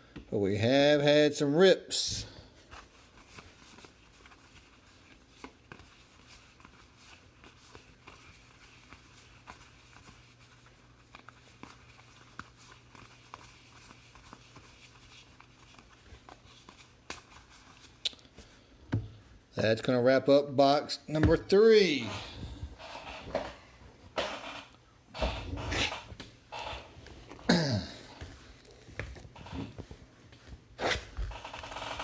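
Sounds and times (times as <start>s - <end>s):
trading cards clicking and rustling: 11.0s - 18.3s.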